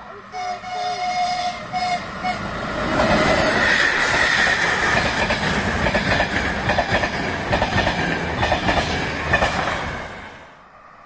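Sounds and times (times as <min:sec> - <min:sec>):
train wheels clicking over rail joints: 0:02.9 - 0:10.1.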